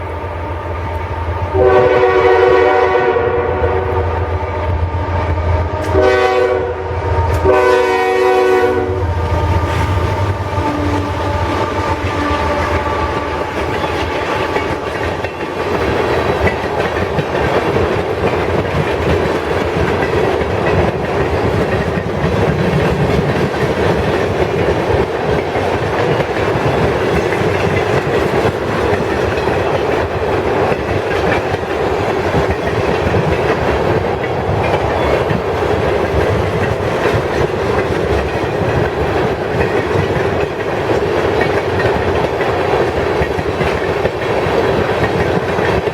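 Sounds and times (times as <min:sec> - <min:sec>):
freight train rumbling past: 0:00.0 - 0:45.9
wheels clacking over rail joints: 0:09.4 - 0:45.9.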